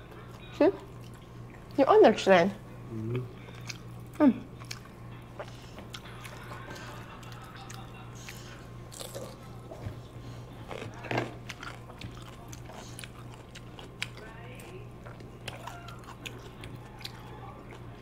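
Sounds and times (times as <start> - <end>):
steady low hum: 0.0 - 18.0
person chewing and biting food: 3.4 - 14.3, 15.0 - 18.0.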